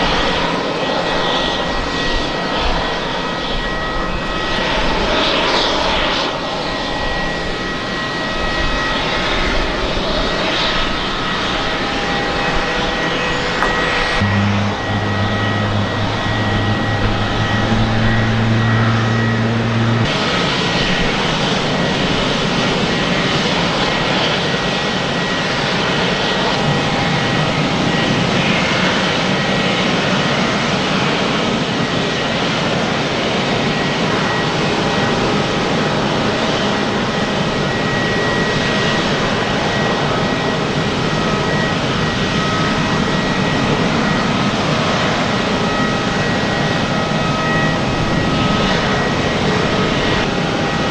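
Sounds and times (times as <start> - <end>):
jet engines roaring: 0.0 - 50.9
high engine whine: 8.9 - 29.8
strong low hum: 14.0 - 20.2.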